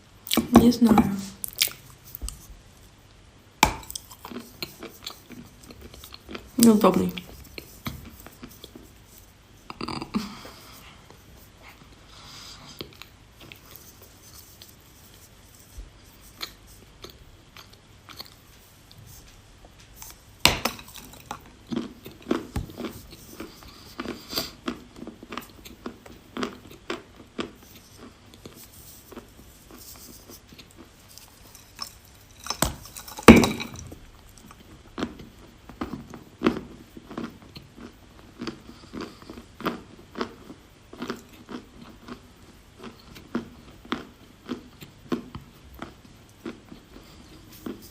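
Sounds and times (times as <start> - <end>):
crunchy chewing: 1.3 - 2.5, 3.8 - 47.9.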